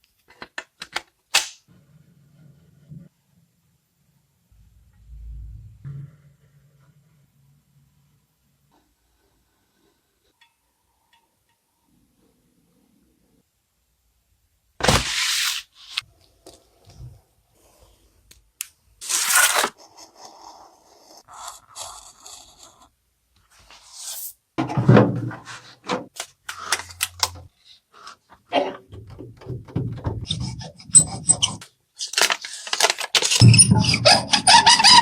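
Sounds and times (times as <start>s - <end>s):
rubbing and scraping: 29.5s - 35.0s.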